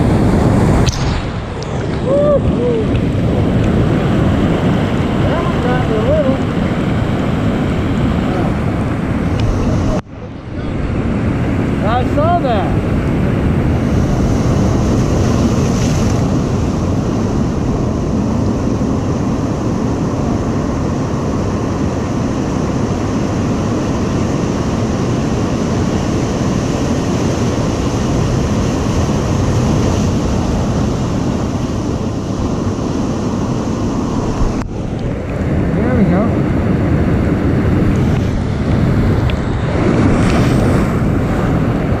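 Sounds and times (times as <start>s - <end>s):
ocean surf crashing: 0.0s - 42.0s
wind buffeting microphone: 0.0s - 42.0s.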